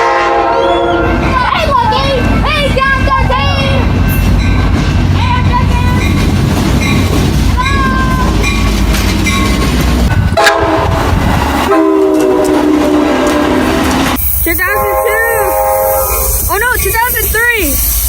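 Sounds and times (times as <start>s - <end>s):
locomotive air horn: 0.0s - 1.2s, 10.4s - 11.0s, 11.6s - 13.8s, 14.5s - 16.5s
train rumbling: 0.0s - 18.0s.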